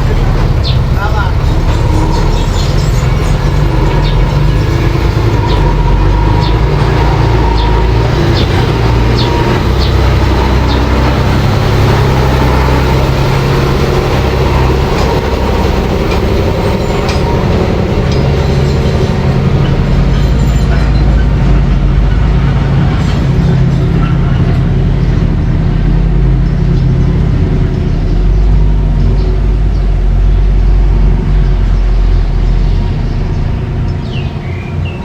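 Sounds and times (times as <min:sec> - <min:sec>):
bulldozer engine rumbling: 0:00.0 - 0:35.0
metallic clinks of tracks: 0:01.4 - 0:25.4.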